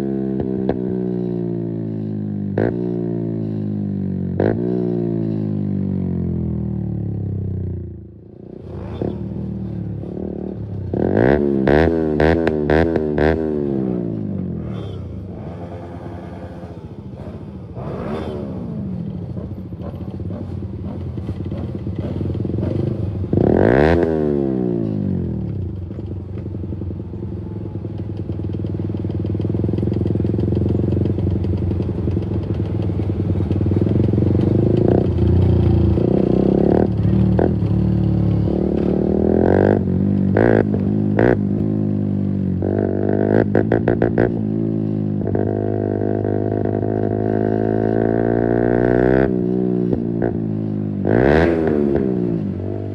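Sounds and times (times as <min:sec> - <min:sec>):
motorcycle engine running loud: 0:00.0 - 0:52.9
engine rev blips: 0:14.4 - 0:22.8.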